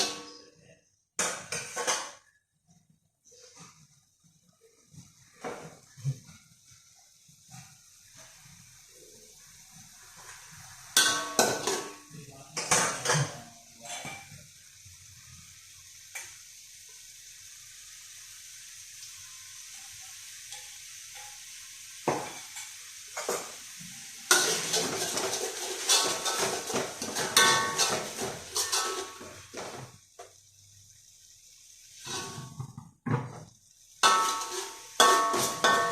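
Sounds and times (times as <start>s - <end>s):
faint sizzle: 0.0s - 35.9s
metal spatula scraping a pan: 22.2s - 29.9s, 32.0s - 33.4s, 34.0s - 35.9s.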